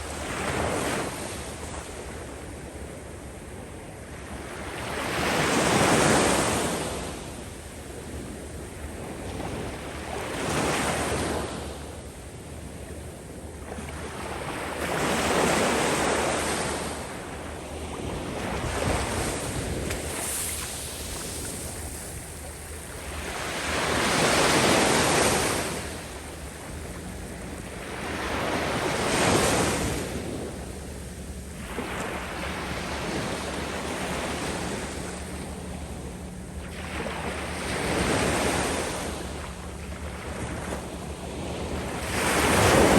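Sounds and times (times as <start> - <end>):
surf washing up a beach: 13.6 - 36.1, 36.7 - 42.9.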